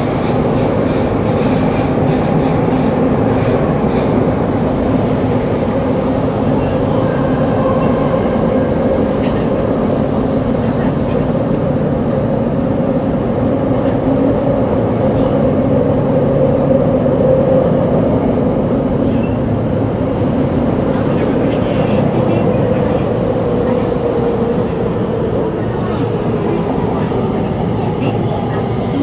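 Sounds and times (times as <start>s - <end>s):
subway motor hum: 0.0s - 29.0s
wheels rumbling on rail: 0.0s - 29.0s.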